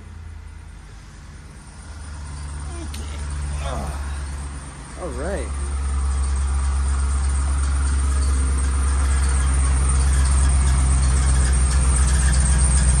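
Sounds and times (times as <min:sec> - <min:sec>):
truck engine idling: 0:00.0 - 0:13.0
higher hum: 0:02.6 - 0:06.7.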